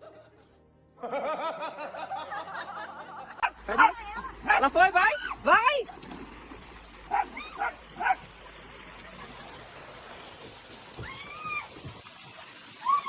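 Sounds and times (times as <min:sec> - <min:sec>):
dog yipping: 0:07.1 - 0:08.2.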